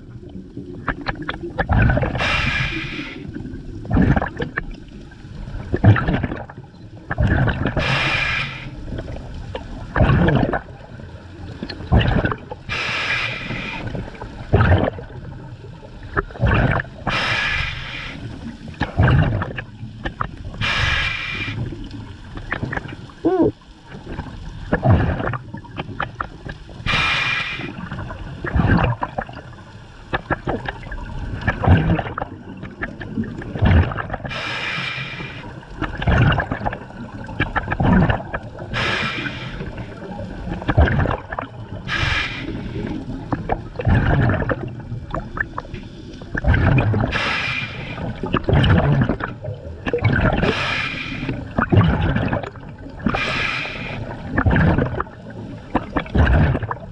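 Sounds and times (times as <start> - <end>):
bubbling exhaust underwater: 0.0 - 56.9
hissing regulator inhales: 2.2 - 3.3, 7.8 - 8.8, 12.7 - 14.0, 17.1 - 18.4, 20.6 - 21.7, 26.9 - 27.8, 34.3 - 35.5, 38.7 - 39.9, 41.9 - 43.0, 47.1 - 48.1, 50.4 - 51.4, 53.1 - 54.2.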